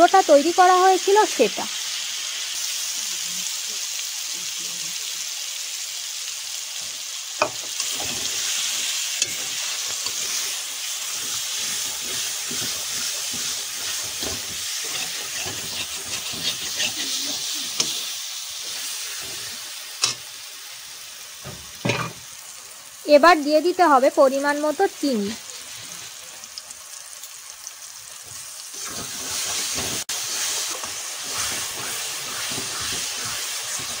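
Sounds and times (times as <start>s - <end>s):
food sizzling in oil: 0.0s - 34.0s
metal spatula scraping: 7.4s - 20.2s, 28.7s - 34.0s.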